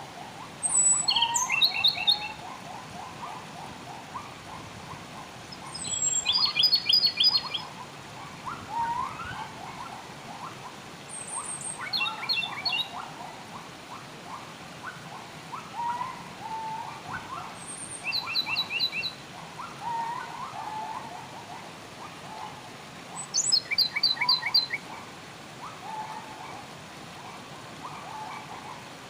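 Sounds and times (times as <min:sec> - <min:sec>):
flowing water hiss: 0:00.0 - 0:29.0
birds chirping: 0:00.6 - 0:02.5, 0:05.5 - 0:07.7, 0:11.1 - 0:13.0, 0:23.2 - 0:24.8.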